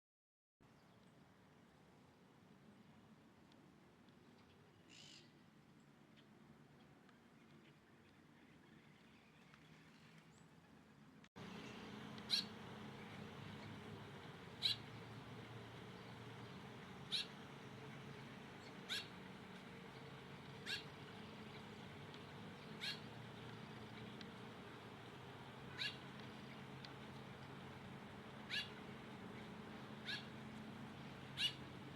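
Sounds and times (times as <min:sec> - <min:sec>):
steady low hum: 0:11.0 - 0:31.9.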